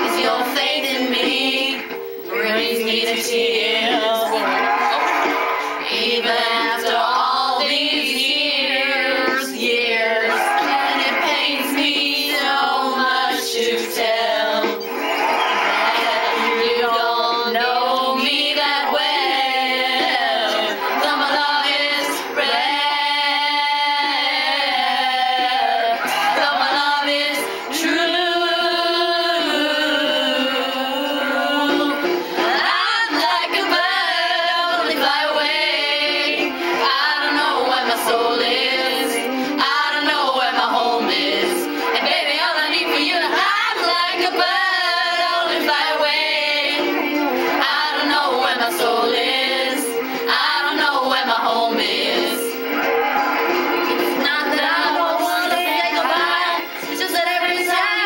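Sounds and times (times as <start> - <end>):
girls singing pop song: 0.0 - 58.0.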